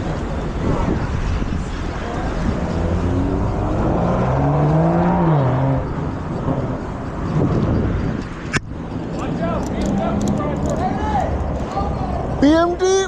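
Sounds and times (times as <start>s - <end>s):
road traffic: 0.0s - 13.0s
wind rumble on microphone: 0.0s - 13.0s
vehicle engine revving: 2.0s - 8.1s.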